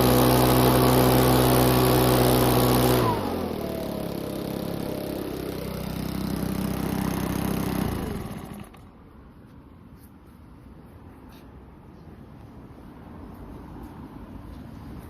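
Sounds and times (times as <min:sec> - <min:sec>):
blower fan whine: 0:00.0 - 0:08.9
blower engine idling: 0:00.0 - 0:09.0.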